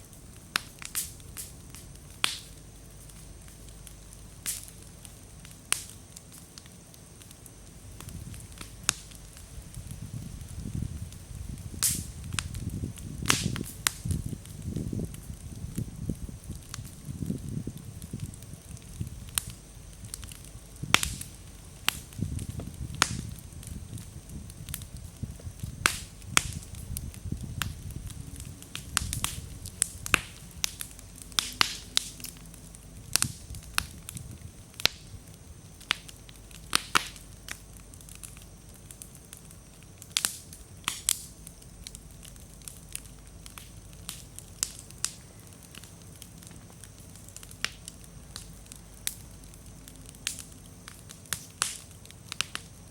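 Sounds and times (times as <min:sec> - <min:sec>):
campfire crackling: 0:00.0 - 0:52.9
low flame rumble: 0:00.0 - 0:52.9
wood popping: 0:18.2 - 0:35.2.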